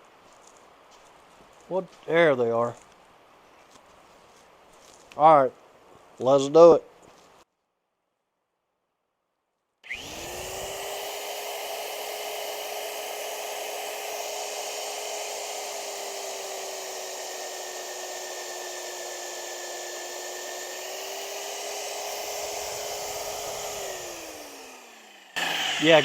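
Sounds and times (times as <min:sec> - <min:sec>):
drill motor whining: 0:09.8 - 0:26.0.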